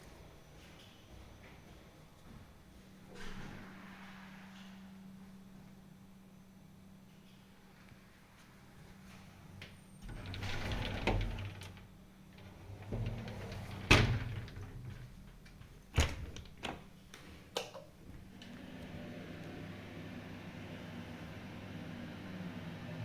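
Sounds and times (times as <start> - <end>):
sliding door rumbling: 10.0 - 16.7, 18.4 - 23.0.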